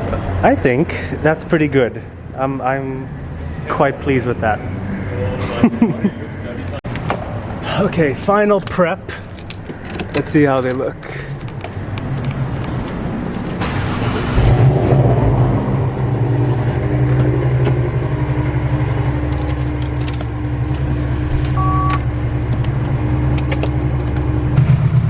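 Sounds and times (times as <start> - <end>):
car engine idling: 9.1 - 12.0, 13.4 - 25.0
two-tone electronic beep: 21.5 - 22.1.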